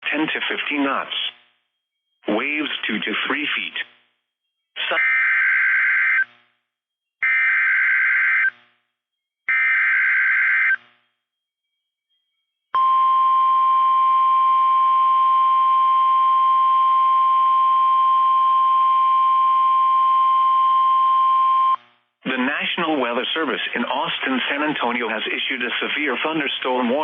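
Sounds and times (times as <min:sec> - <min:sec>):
steady alarm tone: 0:07.2 - 0:20.6.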